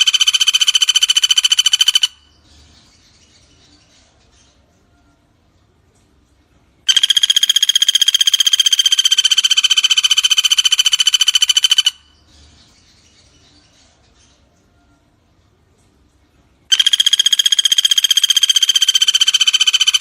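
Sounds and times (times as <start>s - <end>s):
woodpecker rattling trill: 0.0s - 2.3s, 6.9s - 12.2s, 16.7s - 20.0s
faint high chirping: 0.0s - 20.0s.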